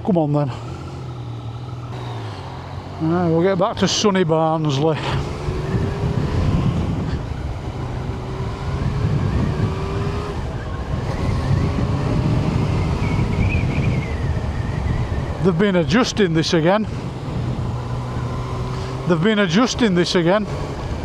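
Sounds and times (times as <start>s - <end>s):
motorcycle engine running: 0.0s - 21.0s
wind noise on microphone: 5.1s - 15.6s, 16.8s - 19.0s.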